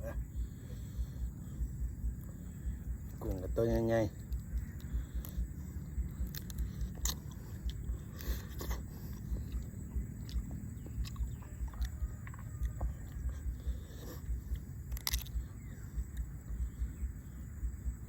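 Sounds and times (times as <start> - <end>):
person chewing food: 4.2 - 17.4.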